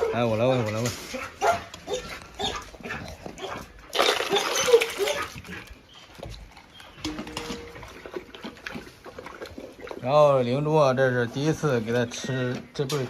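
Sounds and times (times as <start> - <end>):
dog eating wet food splashing: 1.8 - 12.2.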